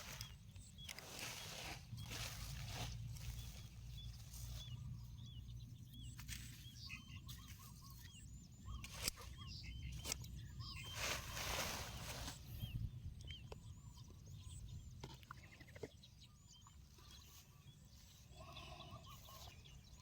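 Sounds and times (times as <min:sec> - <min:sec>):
small birds chirping: 0:00.0 - 0:20.0
rustling: 0:10.9 - 0:12.6.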